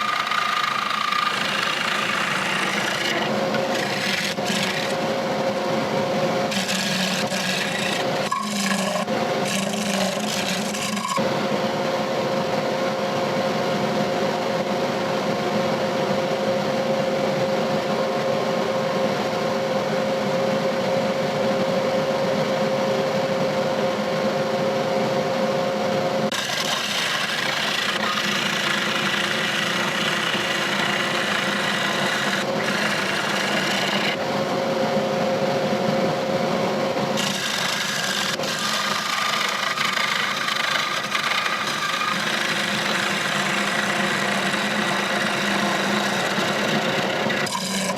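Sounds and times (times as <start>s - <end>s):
turning tool scraping wood: 0.0s - 5.6s, 6.5s - 11.2s, 26.3s - 34.2s, 37.2s - 47.9s
lathe motor hum: 0.0s - 11.3s, 26.3s - 34.4s, 36.9s - 47.9s.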